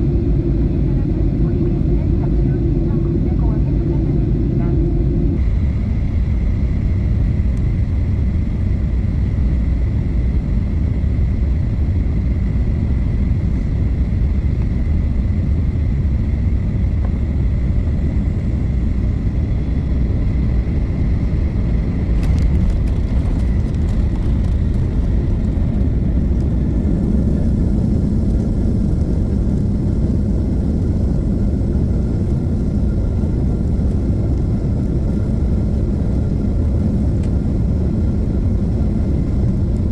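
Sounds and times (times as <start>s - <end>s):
moving vehicle rumble: 0.0s - 39.9s.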